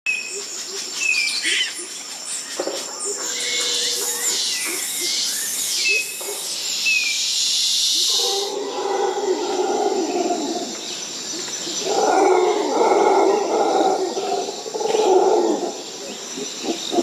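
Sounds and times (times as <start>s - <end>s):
animals hissing: 7.4s - 10.7s.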